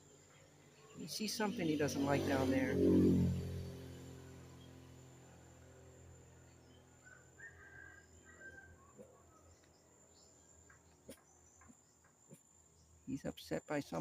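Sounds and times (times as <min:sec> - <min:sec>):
faint bird chirps: 0:06.4 - 0:13.2.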